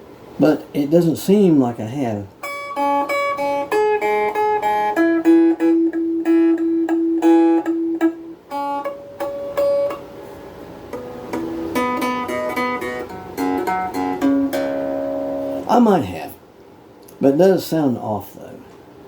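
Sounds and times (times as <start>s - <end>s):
clean electric guitar notes: 2.4s - 10.1s, 10.9s - 15.7s.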